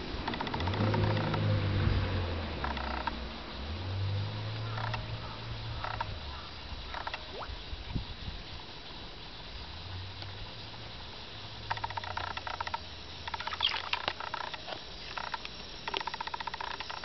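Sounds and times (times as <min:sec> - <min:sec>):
frog croaking: 0:00.0 - 0:01.6, 0:02.5 - 0:03.3, 0:04.4 - 0:07.6, 0:11.6 - 0:17.0.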